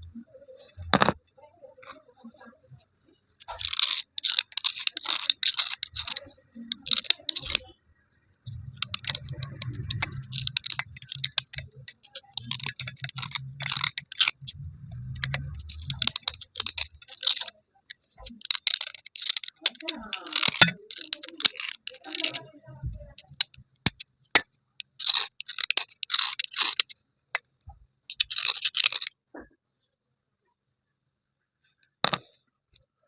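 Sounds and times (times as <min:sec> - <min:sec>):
slate pieces crunching and grating: 0:03.5 - 0:07.6, 0:08.5 - 0:22.5, 0:24.8 - 0:27.5, 0:28.1 - 0:29.1
low hum: 0:08.4 - 0:16.5.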